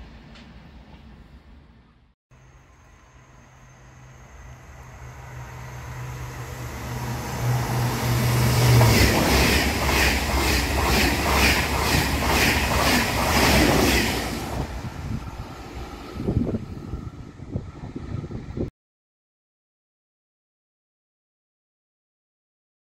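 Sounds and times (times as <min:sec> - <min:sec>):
high-speed train passing: 0:00.0 - 0:18.7.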